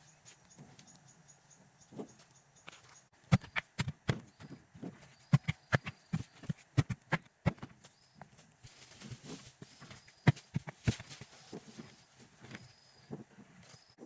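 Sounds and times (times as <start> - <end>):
sharp hollow knocks: 3.3 - 7.8.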